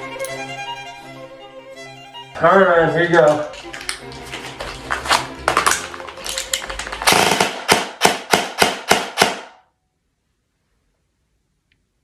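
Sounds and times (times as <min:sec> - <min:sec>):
airsoft gun firing: 0:05.0 - 0:09.6.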